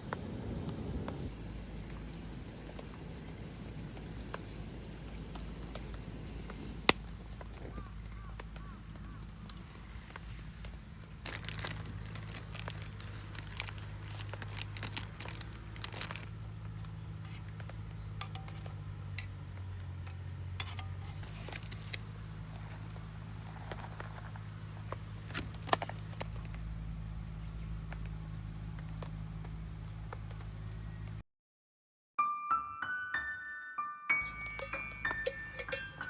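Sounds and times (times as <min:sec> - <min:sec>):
plastic wrapping crinkling: 0:09.8 - 0:17.6, 0:20.8 - 0:26.6.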